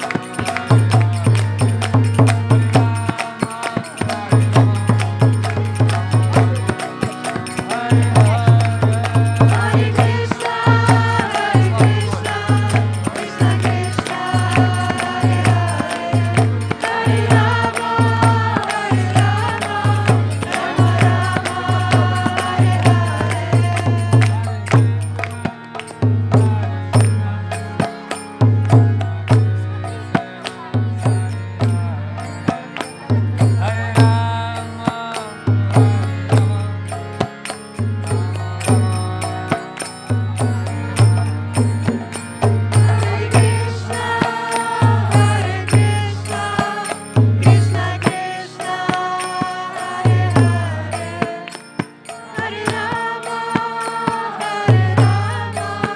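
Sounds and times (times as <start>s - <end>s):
hand drum beat: 0.0s - 25.4s
voices chanting: 0.0s - 55.9s.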